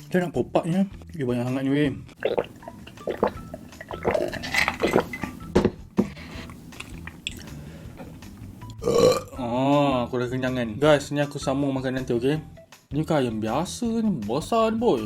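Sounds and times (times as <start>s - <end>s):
wet chewing and mouth smacks: 2.2s - 5.5s, 6.4s - 8.8s.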